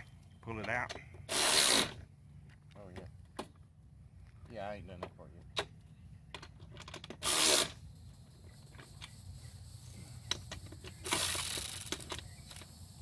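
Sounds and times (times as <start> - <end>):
rasping tool burst: 1.3 - 2.0, 7.2 - 13.0.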